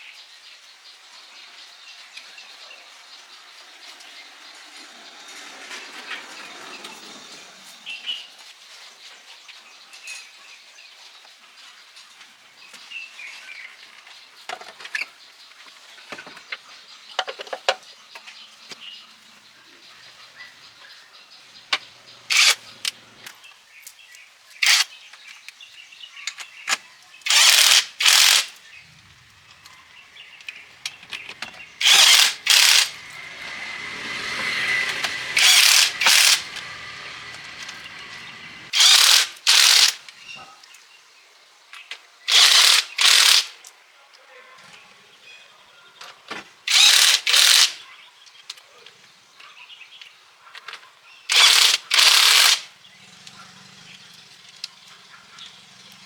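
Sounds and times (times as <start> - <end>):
loud bursts of hiss: 31.6 - 40.0.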